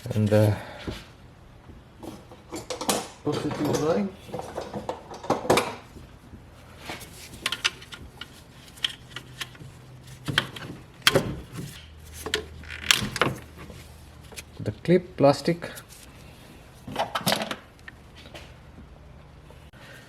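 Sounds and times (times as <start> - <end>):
hand tools clicking and scraping: 6.6 - 14.5.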